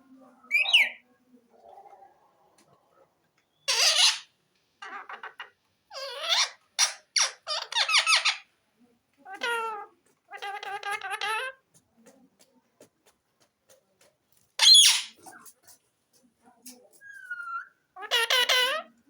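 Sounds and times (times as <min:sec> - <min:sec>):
parakeet squeaky calls: 0:03.6 - 0:08.5, 0:14.6 - 0:15.2, 0:17.0 - 0:18.9.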